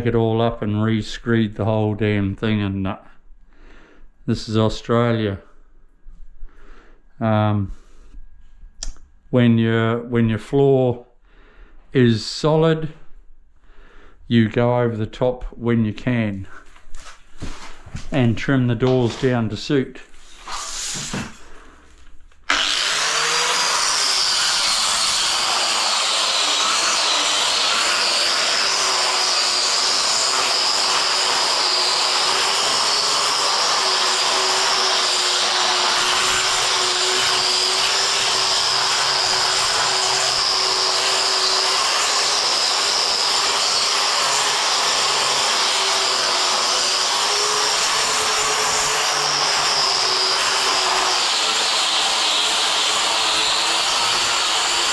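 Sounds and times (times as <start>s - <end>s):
angle grinder grinding floor: 22.4s - 54.9s.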